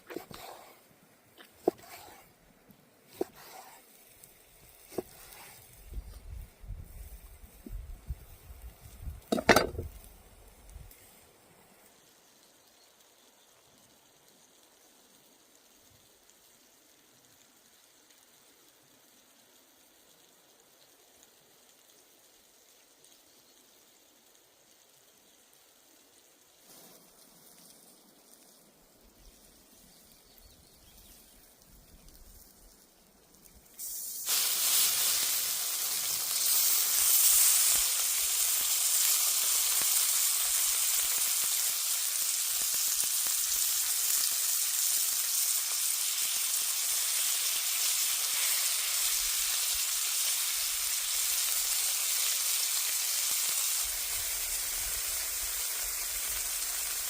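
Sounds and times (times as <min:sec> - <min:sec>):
food sizzling in hot oil: 0:00.0 - 0:02.3, 0:02.9 - 0:57.0.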